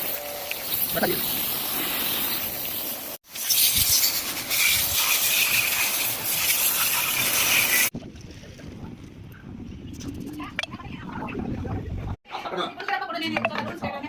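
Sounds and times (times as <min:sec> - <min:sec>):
water jet spraying hiss: 0:00.0 - 0:07.9.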